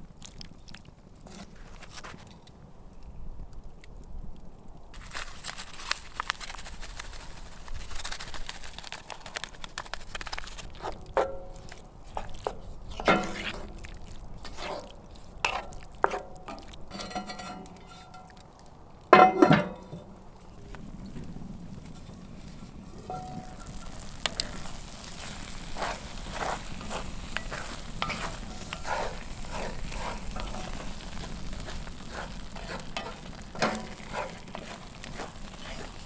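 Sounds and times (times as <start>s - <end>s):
faint steady hiss: 0.0s - 36.0s
metal utensil clinking on pan: 15.5s - 18.4s, 19.2s - 20.1s, 23.1s - 23.8s, 25.8s - 36.0s.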